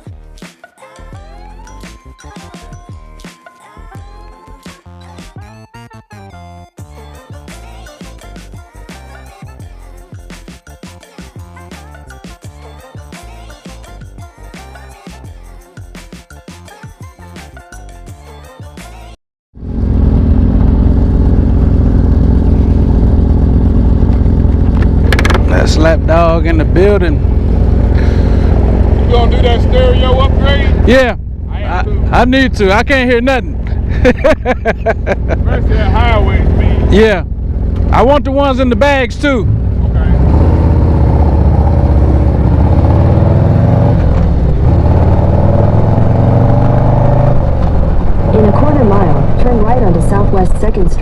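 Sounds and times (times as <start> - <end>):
background music: 0.0 - 19.2
motorcycle engine rumble: 19.6 - 51.0.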